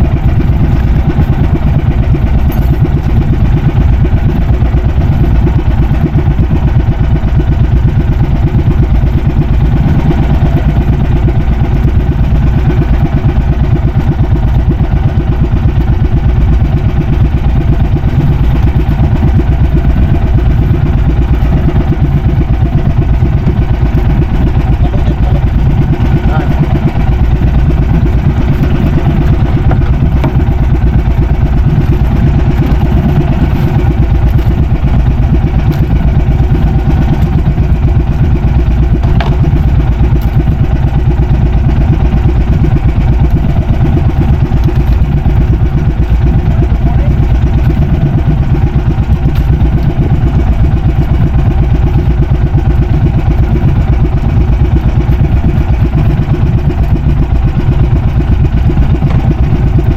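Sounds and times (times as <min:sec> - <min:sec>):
boat engine running: 0:00.0 - 0:59.9.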